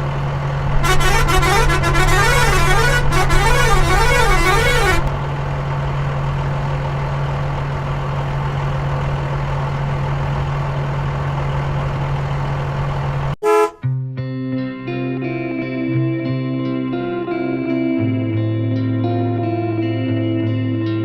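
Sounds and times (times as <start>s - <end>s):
vehicle engine drone: 0.0s - 13.8s
warbling horn: 0.7s - 5.1s, 13.4s - 13.8s.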